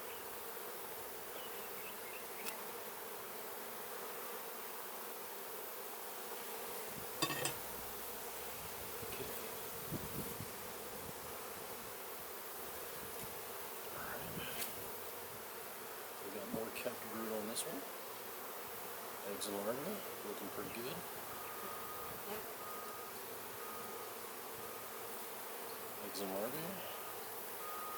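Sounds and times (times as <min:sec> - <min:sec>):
honeybees buzzing: 0:00.0 - 0:27.9.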